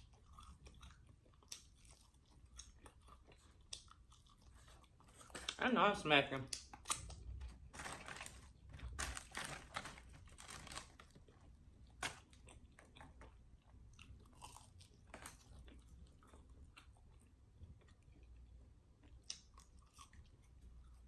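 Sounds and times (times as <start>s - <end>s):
chewing crunchy fried food: 0.0s - 5.7s, 6.5s - 21.0s.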